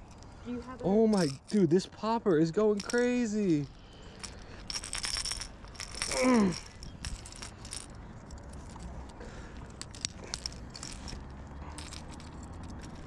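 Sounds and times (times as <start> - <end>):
fishing lure hooks jangling: 0.0 - 1.8, 2.6 - 13.0
person exclaiming: 6.1 - 6.7.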